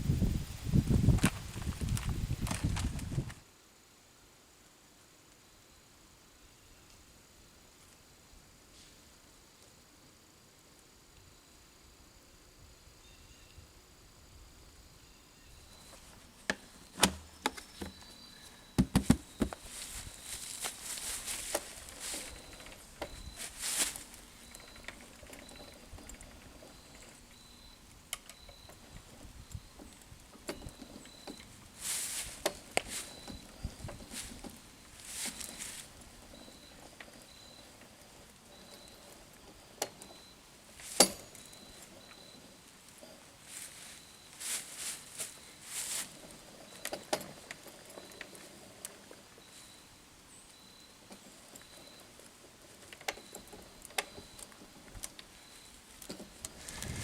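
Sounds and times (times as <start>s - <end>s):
steady rustling: 15.8s - 27.4s, 30.7s - 49.8s, 51.3s - 57.0s
sharp knocks and taps: 18.8s - 19.6s.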